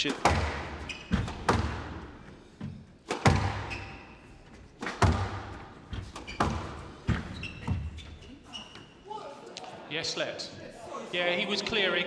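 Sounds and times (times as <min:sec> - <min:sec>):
squash ball knocks: 0:00.0 - 0:02.4, 0:03.0 - 0:08.0
shoes squeaking on court: 0:00.0 - 0:09.3.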